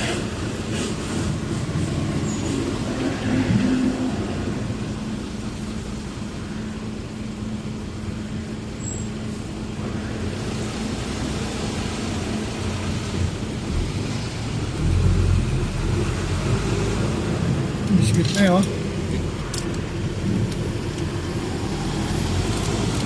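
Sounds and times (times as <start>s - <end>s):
road noise: 0.0s - 23.0s
truck engine running: 0.0s - 23.0s.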